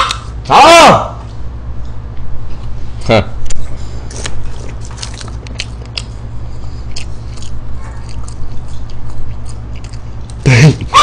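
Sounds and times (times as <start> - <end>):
steady low hum: 0.0 - 11.0
mouth clicks and smacks chewing: 4.1 - 6.2.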